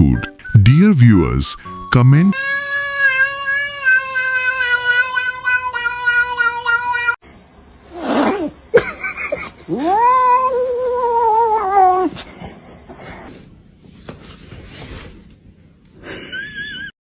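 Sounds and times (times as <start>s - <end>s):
steady stepped tone: 0.0s - 2.3s
cat yowling: 2.3s - 7.2s, 9.7s - 12.2s
cat hissing: 7.8s - 8.6s.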